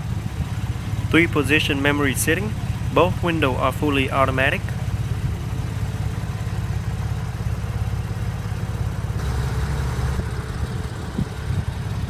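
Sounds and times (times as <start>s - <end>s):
car engine idling: 0.0s - 6.3s.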